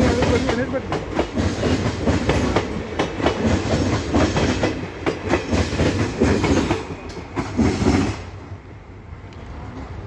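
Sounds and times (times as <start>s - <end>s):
train wheels clattering over rail joints: 0.0s - 8.4s
low train rumble: 0.0s - 10.0s.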